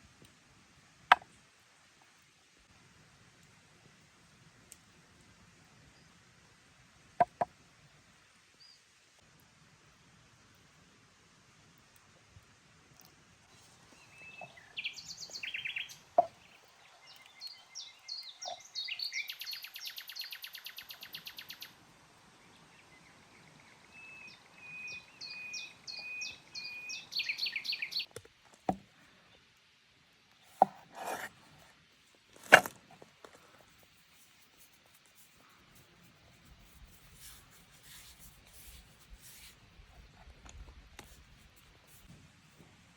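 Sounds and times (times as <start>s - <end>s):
songbirds singing: 13.9s - 21.7s, 23.6s - 28.1s
short scrape: 30.6s - 31.4s.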